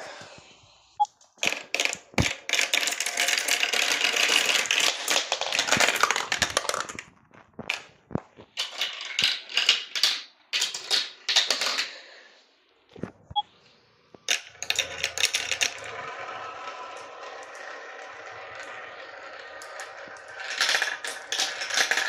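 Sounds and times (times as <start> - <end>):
marbles clicking down track: 1.4 - 7.0, 14.3 - 22.0
marbles rolling rumble: 1.4 - 11.9, 14.3 - 22.0.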